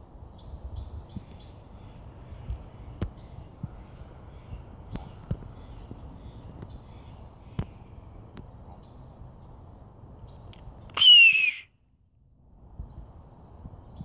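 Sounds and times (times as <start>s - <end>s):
outdoor background noise: 0.0s - 14.0s
hoarse bird call: 10.9s - 11.7s.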